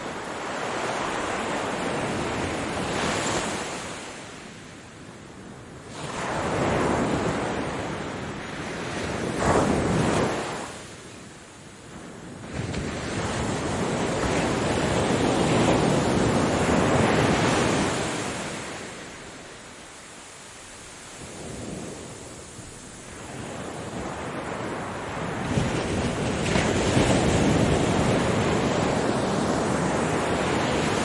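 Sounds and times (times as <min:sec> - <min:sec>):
ocean waves breaking: 0:00.0 - 0:04.6, 0:12.4 - 0:31.0.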